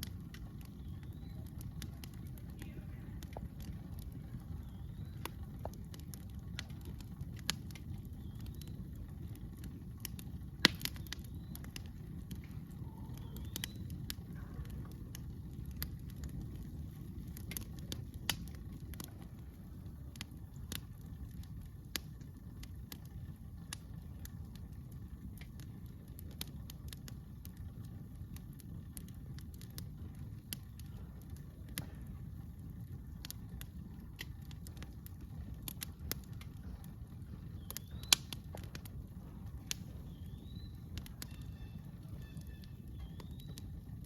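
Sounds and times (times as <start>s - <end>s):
campfire crackling and popping: 0.0s - 44.0s
low fire rumble: 0.0s - 44.0s.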